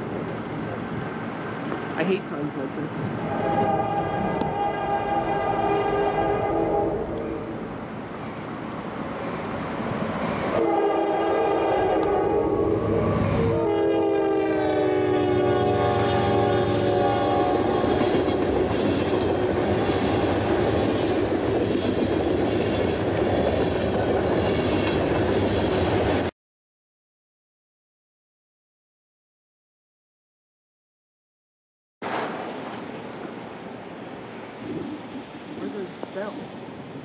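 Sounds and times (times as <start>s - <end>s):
freight train rumble and clatter: 0.0s - 26.3s
train horn blasts: 3.2s - 7.6s, 10.6s - 18.1s.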